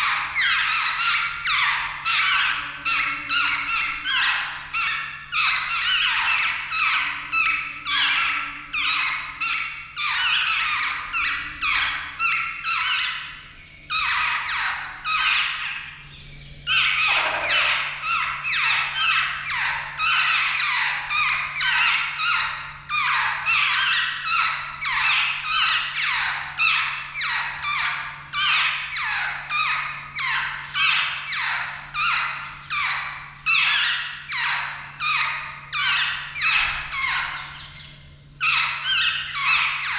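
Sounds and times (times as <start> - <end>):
birds harsh squeaky calls: 0.0 - 39.9.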